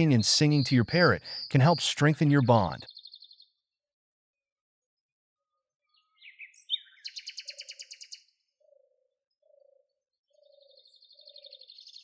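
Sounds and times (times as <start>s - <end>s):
bird buzzy trill: 0.0s - 1.8s
bird high chirping trill: 0.0s - 3.2s, 6.3s - 8.2s
low cooing bird call: 0.5s - 1.6s, 6.0s - 11.9s.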